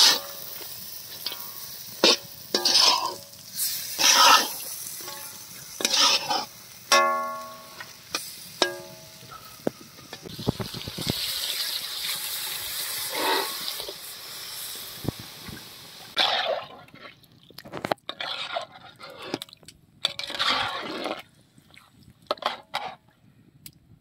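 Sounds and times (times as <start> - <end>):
chicken sizzling in a pot: 0.0 - 16.6
ladle sloshing gravy: 1.2 - 6.6, 16.2 - 23.0.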